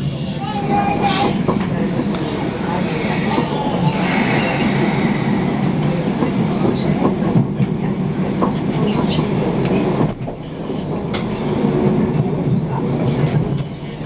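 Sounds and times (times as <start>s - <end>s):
train rumble with wheel clatter: 0.0s - 14.0s
high-pitched squeals: 2.6s - 6.2s.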